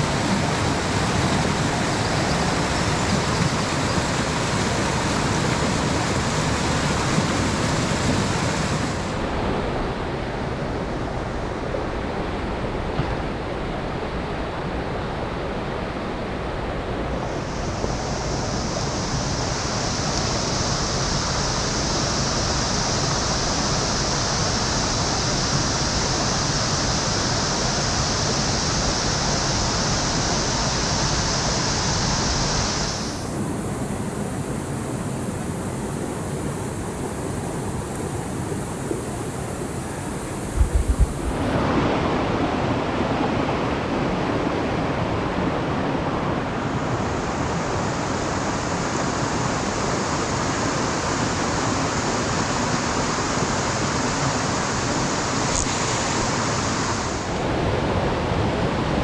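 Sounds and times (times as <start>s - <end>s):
stream water rushing: 0.0s - 11.5s, 15.4s - 59.0s
steady high hiss: 17.2s - 41.7s.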